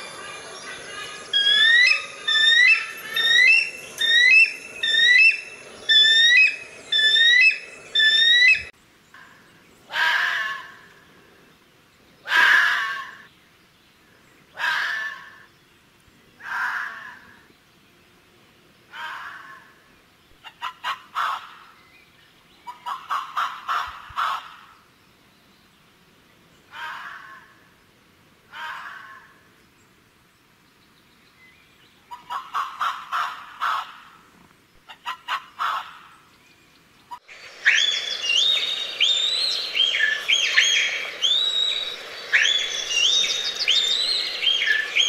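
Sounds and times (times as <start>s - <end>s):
animal long calls: 1.3s - 8.7s, 12.3s - 13.3s, 16.4s - 17.4s, 26.7s - 27.5s, 28.5s - 29.4s.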